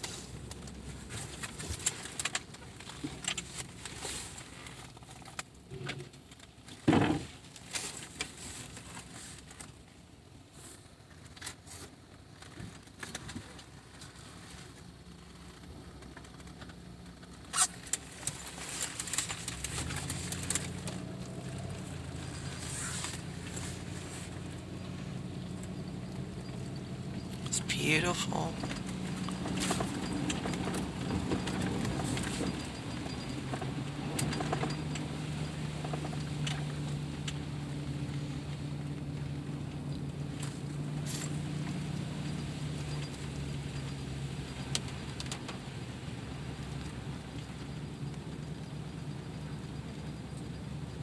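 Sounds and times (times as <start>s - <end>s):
vehicle engine idling: 0.0s - 6.3s, 7.4s - 51.0s
light crackling and pattering: 10.7s - 50.8s.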